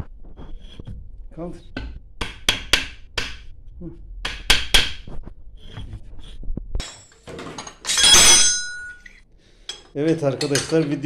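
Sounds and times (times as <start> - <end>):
sharp metal knocks: 1.8 - 3.5, 6.8 - 9.1
metallic clatter with ringing tail: 7.9 - 9.1.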